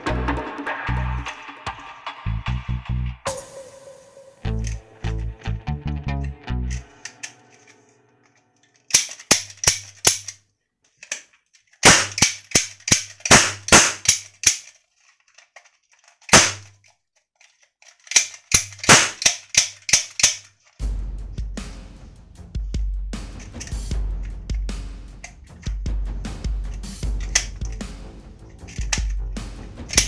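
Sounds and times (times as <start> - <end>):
low hum: 2.3 - 7.0
toy rifle firing bursts: 8.9 - 10.3, 11.8 - 14.7, 16.3 - 16.7, 18.1 - 20.5.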